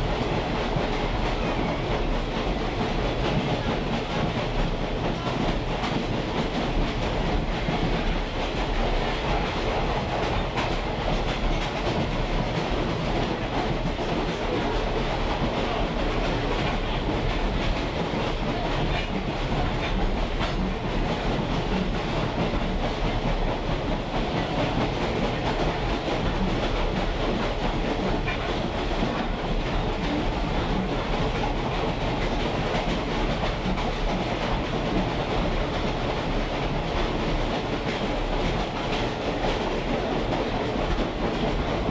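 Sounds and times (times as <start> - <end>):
rail clatter: 0.0 - 41.9
train wheels rumbling on rails: 0.0 - 41.9.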